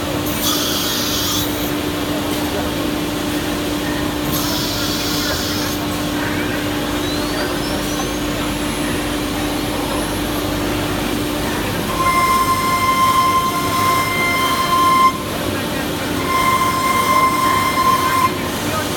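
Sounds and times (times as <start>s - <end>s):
machinery humming: 0.0s - 18.9s
steady high tone: 11.5s - 18.9s.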